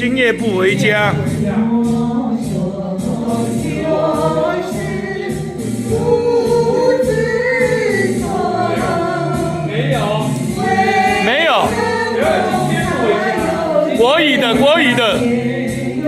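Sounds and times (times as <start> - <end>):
karaoke music track: 0.0 - 16.0
choir-like voices holding notes: 0.8 - 16.0.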